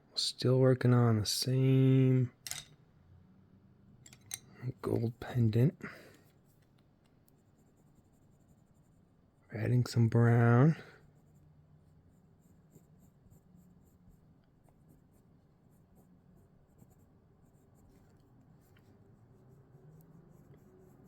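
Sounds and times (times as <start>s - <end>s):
pencil scratching on paper: 7.3s - 9.2s, 10.4s - 21.0s.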